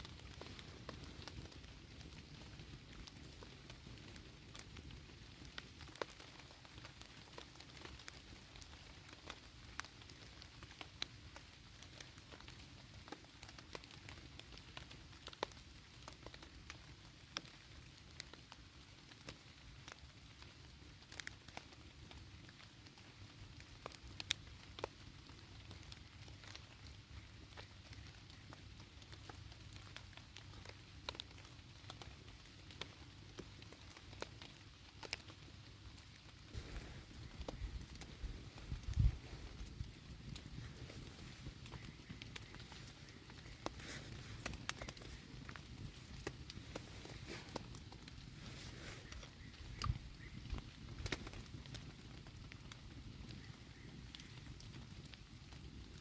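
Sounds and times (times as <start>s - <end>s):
light rain falling: 0.0s - 56.0s
sharp ticks and pops: 23.6s - 55.9s.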